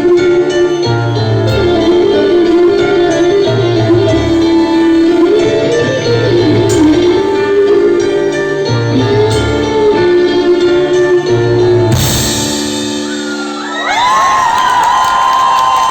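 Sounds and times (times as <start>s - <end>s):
live band music: 0.0s - 14.1s
audience cheering and whistling: 12.8s - 15.9s.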